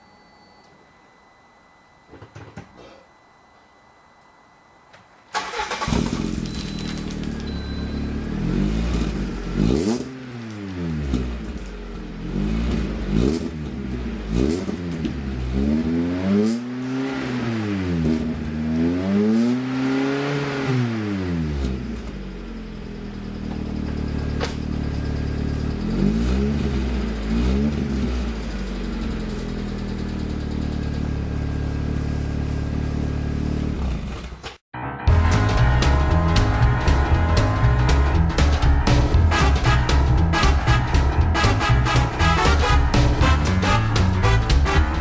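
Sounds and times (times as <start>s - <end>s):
car engine revving: 8.1s - 34.3s
car engine idling: 21.9s - 34.1s.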